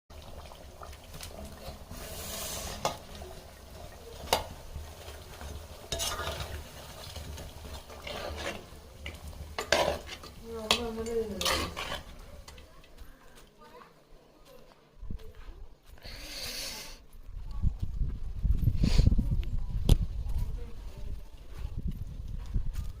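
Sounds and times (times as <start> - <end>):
food sizzling: 0.1 - 13.4
metal spoon scraping in pot: 1.3 - 3.3, 5.1 - 12.7.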